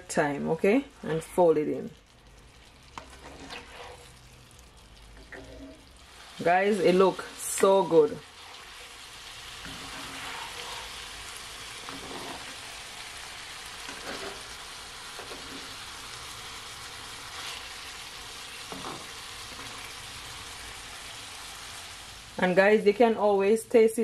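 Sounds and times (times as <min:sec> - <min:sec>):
food sizzling in a skillet: 0:00.9 - 0:23.2
spatula scraping: 0:03.0 - 0:04.2, 0:05.2 - 0:08.9, 0:09.5 - 0:12.8, 0:13.8 - 0:15.9, 0:18.6 - 0:19.9.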